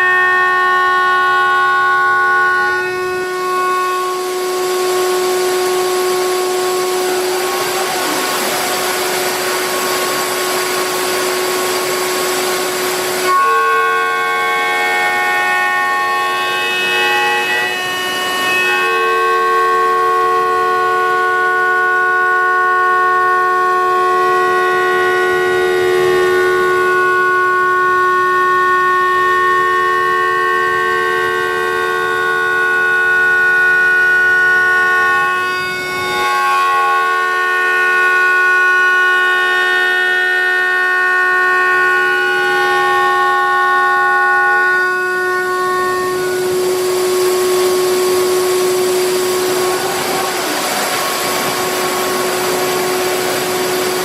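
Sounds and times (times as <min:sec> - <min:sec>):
router spindle whining: 0:00.0 - 0:54.0.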